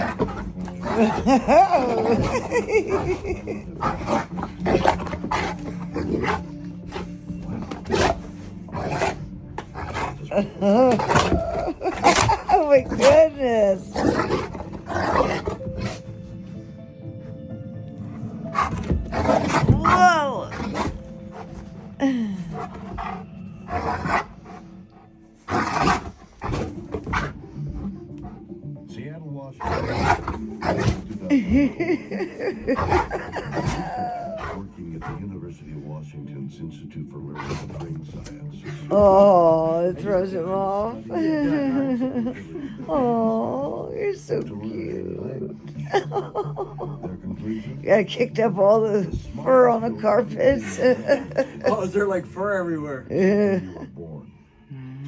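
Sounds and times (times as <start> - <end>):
dog drawn-out vocal: 0.0 - 16.1, 18.5 - 24.6, 29.6 - 35.2
dog growling and snarling: 0.0 - 28.6, 29.6 - 35.5, 37.2 - 47.3, 47.9 - 51.9.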